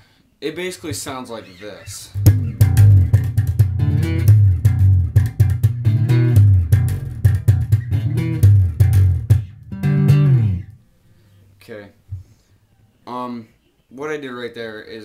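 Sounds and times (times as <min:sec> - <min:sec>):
slap bass guitar riff: 0:02.1 - 0:10.8.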